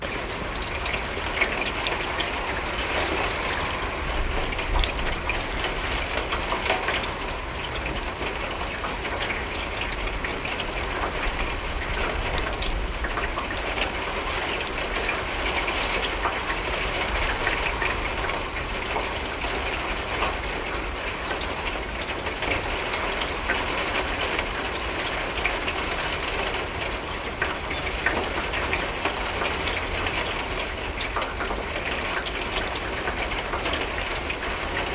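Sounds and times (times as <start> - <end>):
rain on window glass: 0.0 - 8.2.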